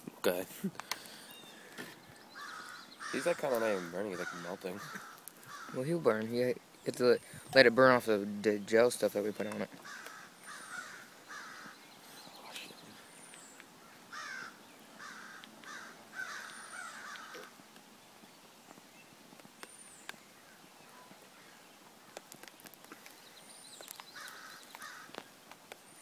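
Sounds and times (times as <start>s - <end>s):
bird calling harsh notes: 0.9s - 7.4s, 9.2s - 17.6s, 23.0s - 25.2s.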